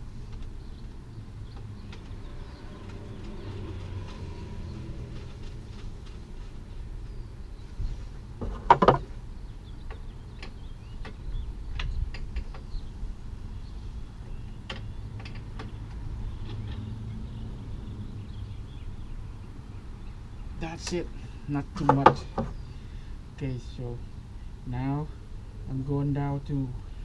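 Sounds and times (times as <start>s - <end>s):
car parts clattering: 8.4s - 9.1s.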